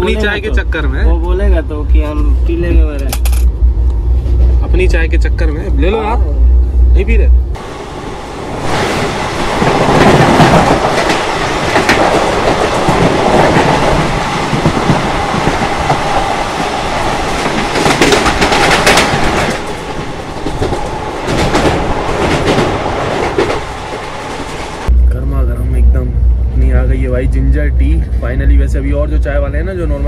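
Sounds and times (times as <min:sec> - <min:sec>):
passing train: 0:00.0 - 0:30.0
train wheel clatter and rushing: 0:07.6 - 0:24.9.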